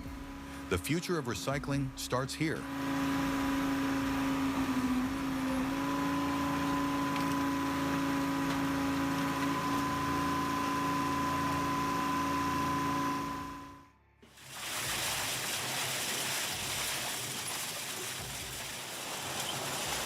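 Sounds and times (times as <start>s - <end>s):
machine humming and whining: 0.0s - 14.0s.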